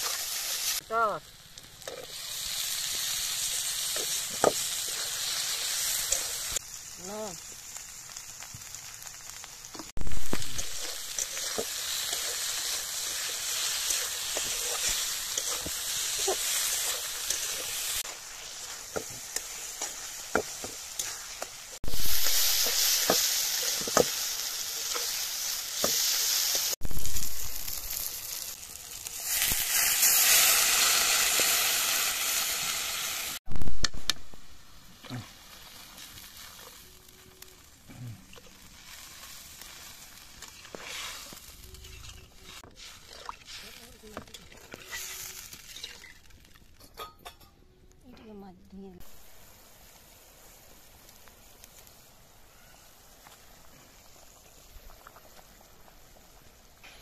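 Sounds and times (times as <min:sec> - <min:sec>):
paste sizzling in a wok: 0:00.0 - 0:47.1, 0:49.0 - 0:57.0
metal spatula scraping a wok: 0:10.3 - 0:26.8, 0:39.9 - 0:46.2.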